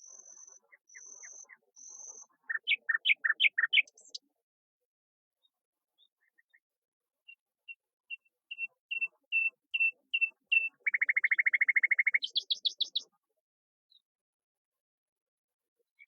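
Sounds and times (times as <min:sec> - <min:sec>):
songbird singing: 0:00.0 - 0:04.3, 0:07.3 - 0:13.1.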